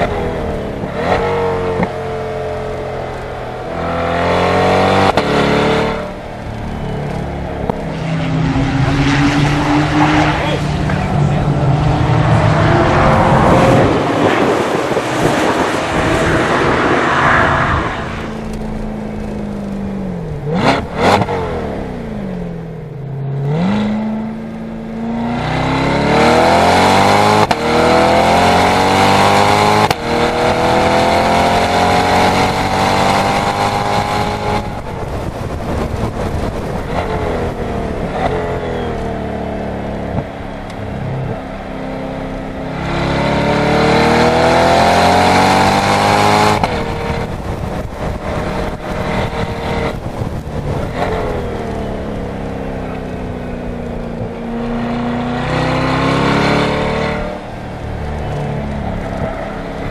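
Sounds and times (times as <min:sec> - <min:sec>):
sports car engine revving: 0:00.0 - 0:59.9
gear upshifts: 0:04.3 - 0:22.0.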